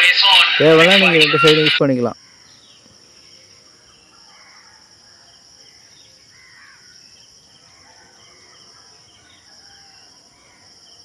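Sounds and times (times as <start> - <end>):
birds chirping: 0.0 - 10.7
insect chorus drone: 0.0 - 11.0.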